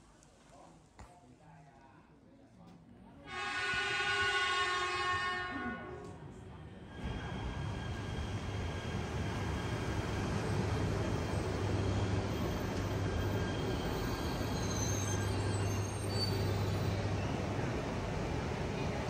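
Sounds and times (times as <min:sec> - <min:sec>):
train pulling into station: 0:03.3 - 0:19.0
faint high squeals: 0:11.4 - 0:17.4.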